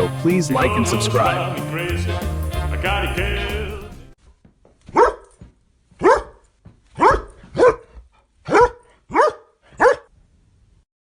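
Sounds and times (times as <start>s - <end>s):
dog barking: 4.9s - 5.3s, 6.0s - 6.4s, 7.0s - 10.1s.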